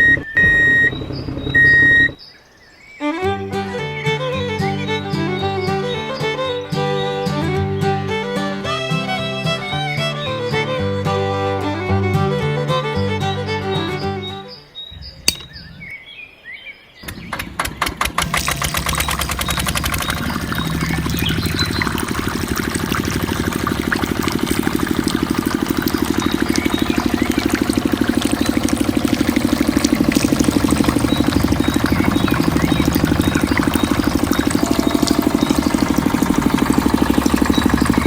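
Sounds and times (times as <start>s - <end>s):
small engine starting and running: 17.1s - 38.0s.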